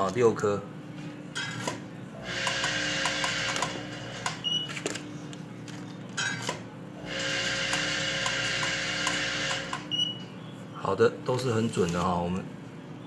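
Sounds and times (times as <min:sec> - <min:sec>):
packaging machine buzzing: 0:01.4 - 0:10.0
machine clicks: 0:02.4 - 0:04.5.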